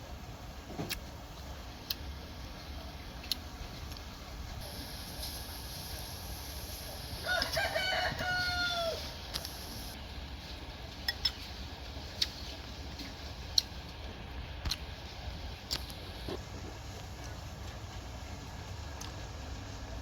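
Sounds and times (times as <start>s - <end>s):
rooster crowing: 7.2s - 10.0s.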